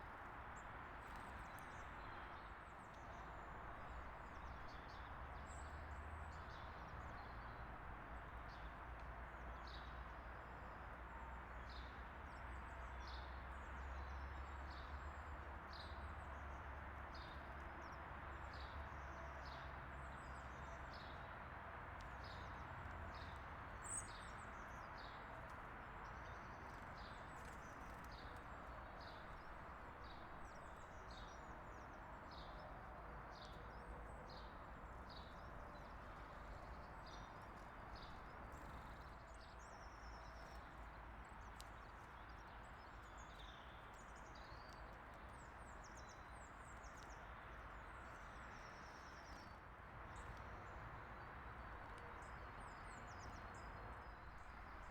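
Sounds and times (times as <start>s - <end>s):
small songbirds chirping: 22.0s - 54.9s.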